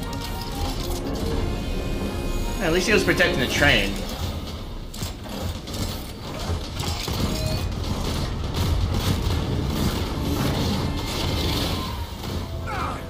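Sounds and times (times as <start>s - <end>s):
moving train rumble and clattering: 2.8s - 13.0s.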